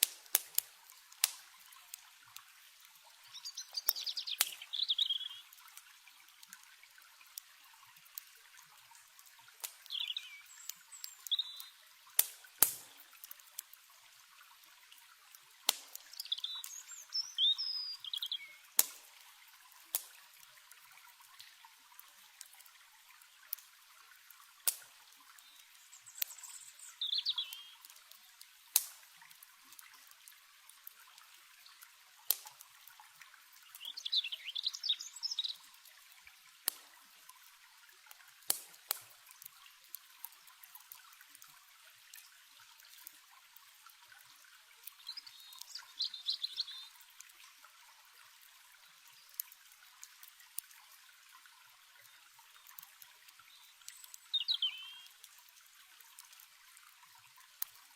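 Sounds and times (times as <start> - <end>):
sharp crackling pops: 0.0 - 2.5, 3.7 - 4.8, 9.5 - 13.8, 15.6 - 17.1, 18.1 - 20.2, 24.6 - 29.8, 32.3 - 32.6, 36.6 - 37.0, 38.4 - 39.6
water trickling: 0.0 - 57.9
songbird trilling: 3.3 - 5.4, 16.2 - 18.6, 26.9 - 27.8, 33.8 - 35.5, 54.3 - 55.0.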